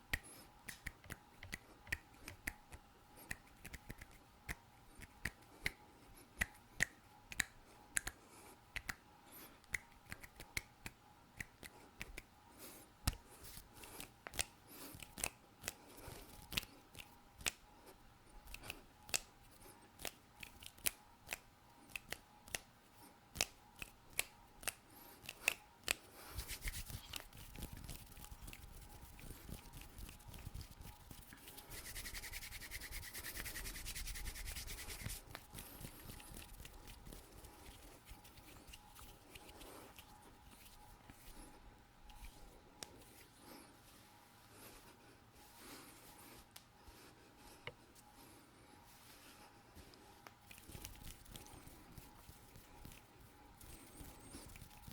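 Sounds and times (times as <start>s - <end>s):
finger clicks: 0.1s - 5.8s, 6.4s - 9.0s, 9.6s - 12.3s, 13.9s - 15.8s, 16.4s - 17.6s, 18.4s - 19.3s, 20.0s - 22.7s, 23.3s - 26.1s
skin rubbing on skin: 26.2s - 41.5s, 50.4s - 54.9s.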